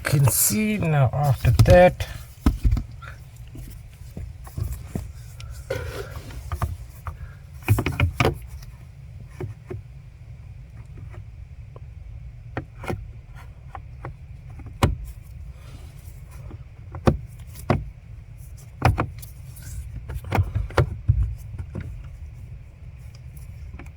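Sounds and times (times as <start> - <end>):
rustling: 0.0 - 9.8
steady low hum: 0.0 - 23.9.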